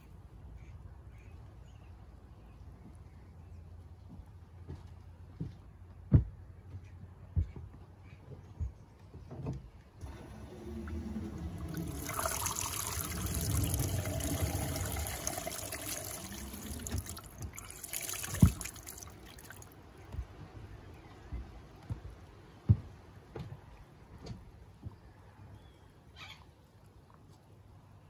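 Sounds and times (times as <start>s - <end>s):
water running down pipe: 10.0s - 19.8s.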